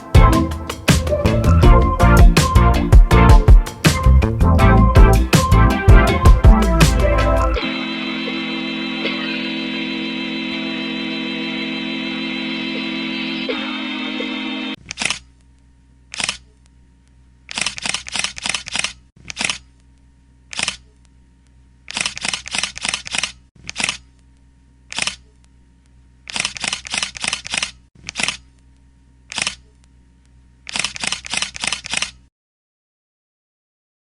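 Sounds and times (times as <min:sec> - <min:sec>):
camera shutter clicking: 0:16.1 - 0:16.4, 0:17.5 - 0:19.6, 0:20.5 - 0:20.8, 0:21.9 - 0:24.0, 0:24.9 - 0:25.2, 0:26.3 - 0:28.4, 0:29.3 - 0:29.6, 0:30.7 - 0:32.2.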